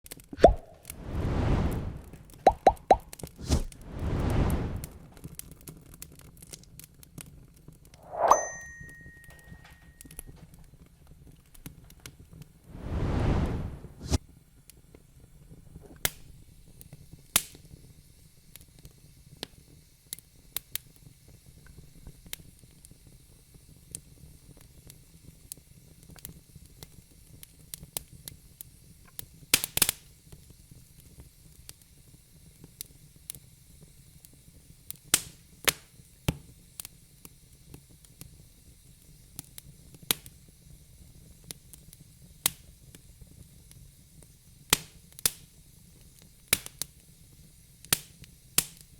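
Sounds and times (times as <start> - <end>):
wood fire crackling: 0.1 - 8.0, 11.3 - 14.2
flames hissing and rumbling: 0.4 - 6.1, 12.3 - 48.9.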